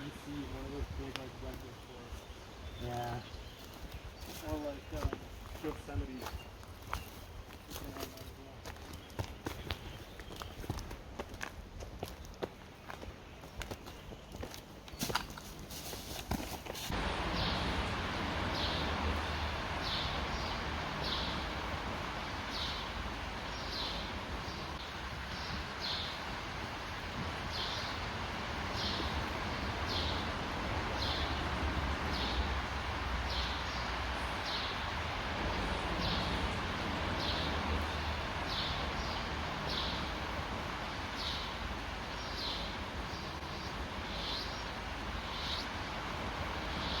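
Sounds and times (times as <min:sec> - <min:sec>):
wind rumble on microphone: 0:16.9 - 0:47.0.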